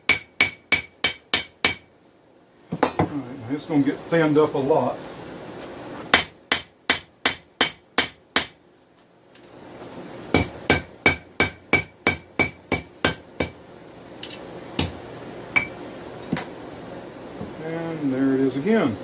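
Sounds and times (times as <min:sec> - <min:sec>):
hammer striking steel on anvil: 0:00.0 - 0:01.9, 0:06.2 - 0:08.6, 0:10.4 - 0:13.6.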